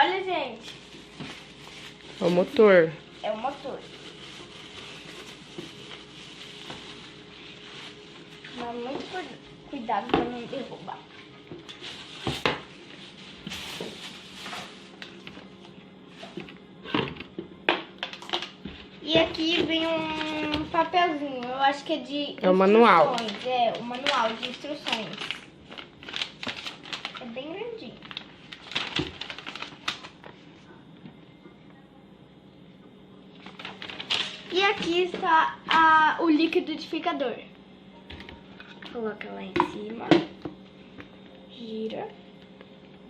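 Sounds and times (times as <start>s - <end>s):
packaging rustling: 0.6s - 15.6s, 22.7s - 30.4s, 33.4s - 35.3s.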